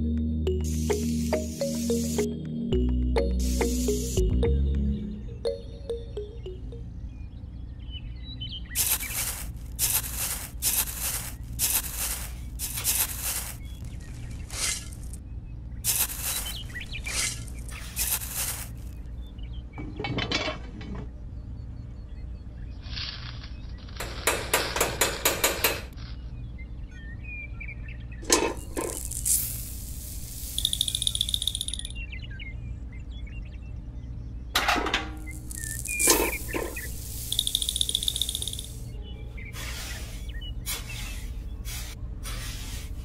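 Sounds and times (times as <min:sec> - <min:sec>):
high chirping: 0:03.2 - 0:07.0, 0:08.6 - 0:15.2, 0:15.8 - 0:19.1, 0:28.5 - 0:32.2, 0:35.1 - 0:41.7
powder pouring onto ground: 0:08.8 - 0:15.2, 0:15.9 - 0:18.9, 0:28.6 - 0:31.9, 0:35.2 - 0:38.8
small shovel scraping soil: 0:08.8 - 0:15.2, 0:15.9 - 0:19.0, 0:28.3 - 0:31.8, 0:35.2 - 0:38.8, 0:39.5 - 0:43.0.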